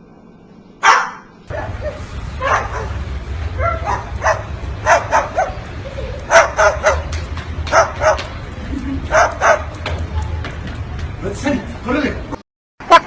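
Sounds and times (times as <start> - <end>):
low hum: 1.4 - 12.4.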